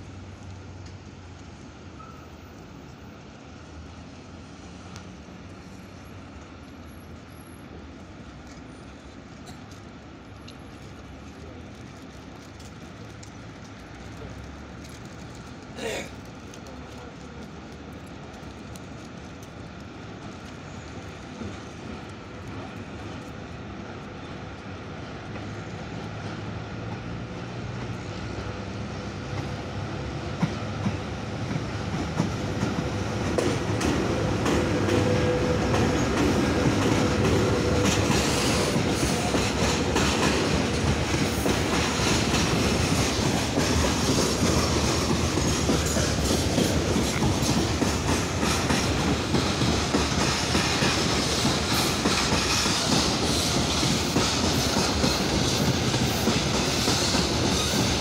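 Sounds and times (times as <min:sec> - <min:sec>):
electric locomotive passing: 0:00.0 - 0:58.0
faint locomotive whine: 0:00.0 - 0:58.0
wheel clatter over rail joints: 0:30.4 - 0:58.0.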